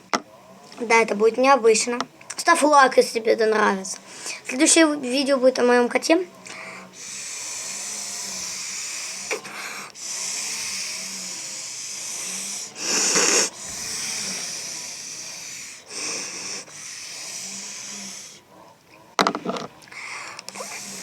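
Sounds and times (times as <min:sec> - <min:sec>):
airy hiss of blow-pen markers: 0:06.6 - 0:18.4, 0:20.0 - 0:21.0.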